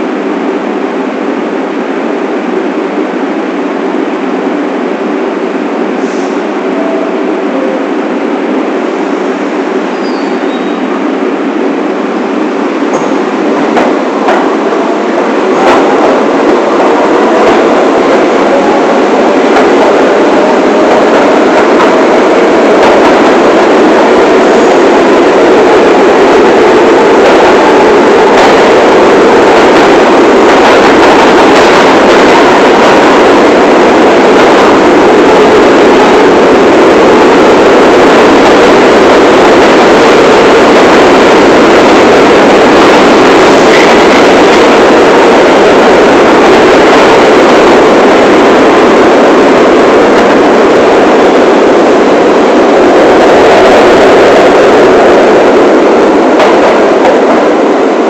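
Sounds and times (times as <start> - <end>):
subway train wheels rumbling: 0.0 - 58.0
track clicks: 12.7 - 58.0.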